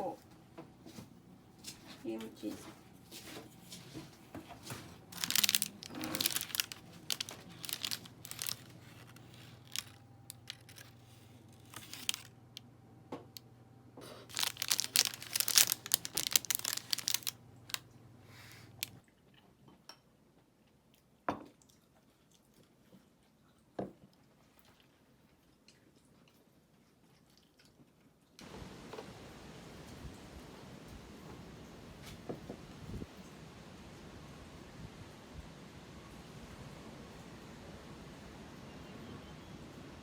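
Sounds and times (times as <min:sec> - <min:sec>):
plastic wrapper crinkling and tearing: 0:04.6 - 0:12.3, 0:14.3 - 0:17.8.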